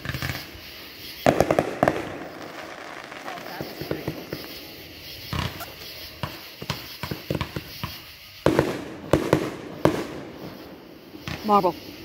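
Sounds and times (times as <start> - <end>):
fireworks bangs: 0.0 - 12.0
fireworks popping and crackling: 0.0 - 12.0.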